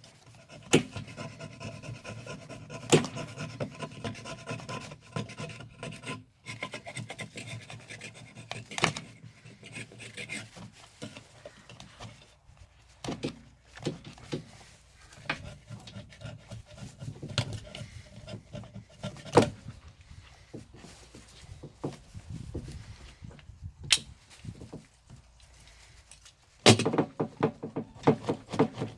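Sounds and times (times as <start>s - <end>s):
tools rubbing clicking and knocking: 26.1s - 28.9s.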